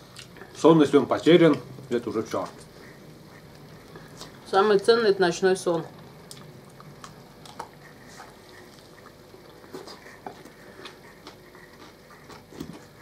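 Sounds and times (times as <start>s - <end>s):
soft eating smacks and clicks: 0.0s - 0.6s, 1.2s - 4.5s, 5.7s - 13.0s
people chewing meat: 0.0s - 4.9s, 5.6s - 13.0s.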